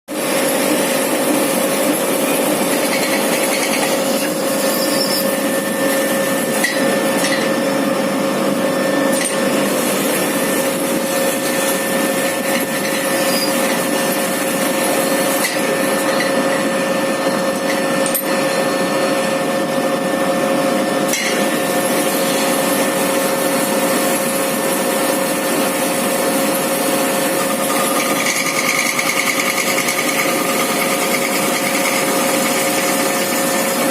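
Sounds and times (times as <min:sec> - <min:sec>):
lathe machining noise: 0:00.1 - 0:33.9
held tone: 0:03.6 - 0:08.2.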